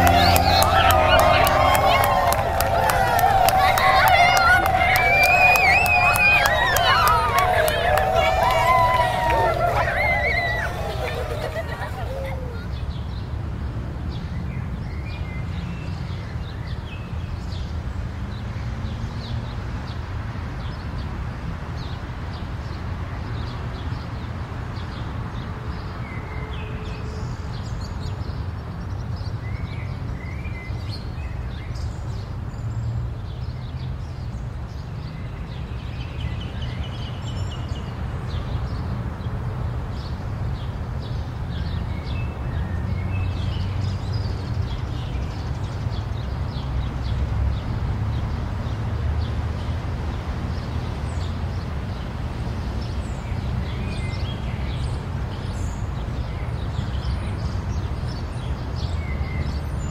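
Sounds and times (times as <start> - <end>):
birds chirping: 0.0 - 12.7.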